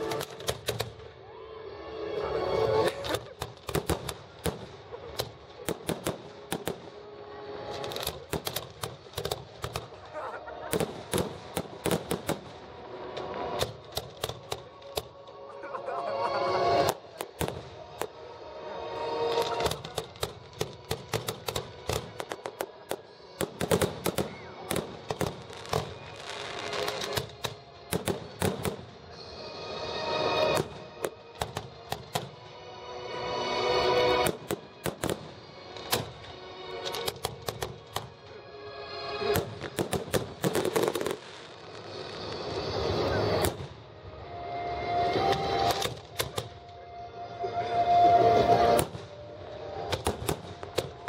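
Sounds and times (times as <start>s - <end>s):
fireworks cracking and banging: 0.0s - 1.2s, 2.8s - 15.4s, 16.7s - 18.3s, 19.2s - 29.2s, 30.3s - 32.5s, 34.1s - 38.3s, 39.2s - 43.9s, 45.1s - 46.8s, 48.5s - 51.0s
hissing crackle: 19.2s - 29.5s, 39.3s - 44.0s.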